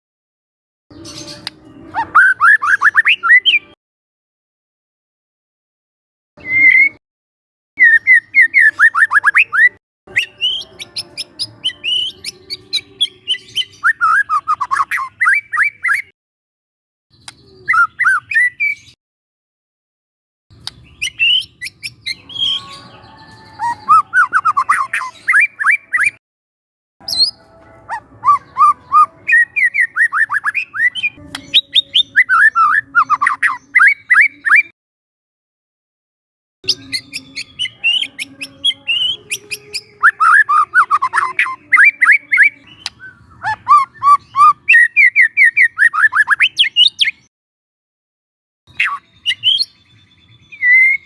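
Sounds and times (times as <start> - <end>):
bird singing chips and whistles: 1.0 - 3.7, 6.4 - 7.0, 7.8 - 16.1, 17.1 - 19.0, 20.6 - 26.2, 27.0 - 34.7, 36.7 - 47.2, 48.7 - 51.0.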